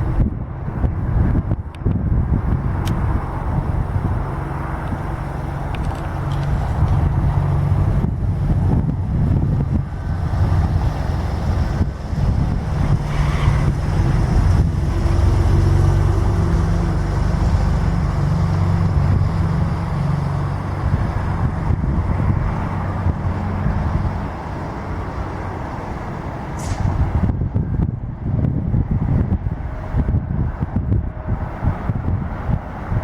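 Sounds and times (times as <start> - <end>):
engine rumble with pitched hum: 0.0 - 33.0
brief hiss: 26.6 - 27.0.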